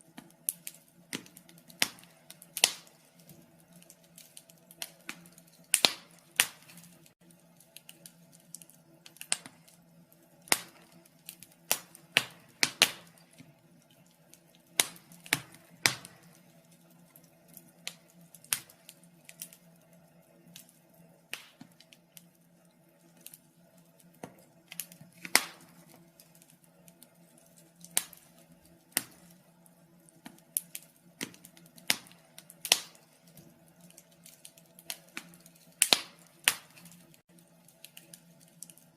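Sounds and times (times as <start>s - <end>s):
faint steady hum: 0.0s - 38.9s
fire pops and snaps: 0.0s - 38.9s
wood fire crackling: 0.0s - 38.9s.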